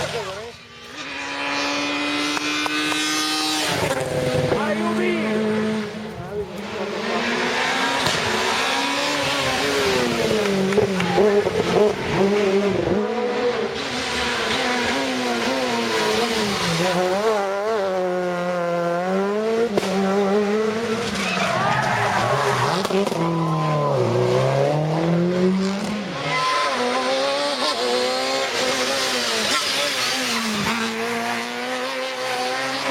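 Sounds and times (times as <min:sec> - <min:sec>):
rally car engines at full throttle: 0:00.0 - 0:32.9.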